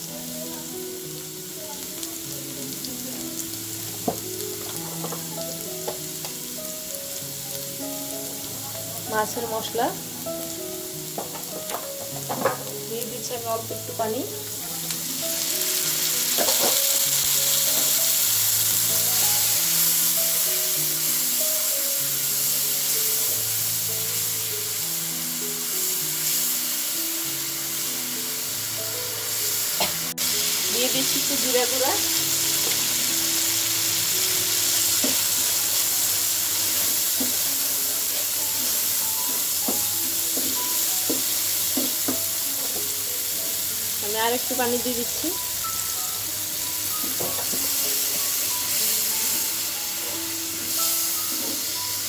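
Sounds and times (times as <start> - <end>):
food sizzling in oil: 0.0 - 52.0
soft background melody: 0.0 - 52.0.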